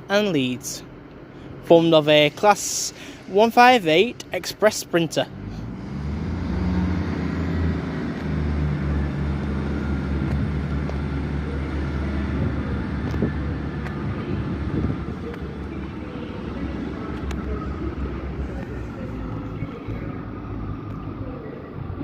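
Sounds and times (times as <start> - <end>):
train diesel engines droning: 0.0 - 22.0.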